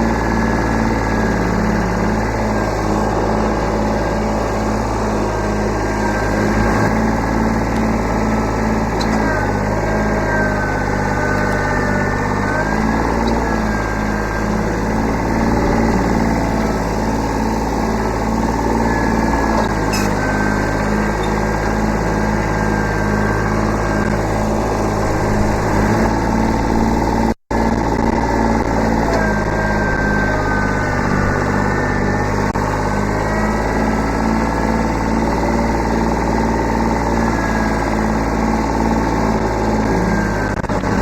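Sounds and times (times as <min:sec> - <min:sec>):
tractor diesel engine running: 0:00.0 - 0:41.0
thin high wavering whine: 0:08.0 - 0:27.1, 0:28.0 - 0:35.9.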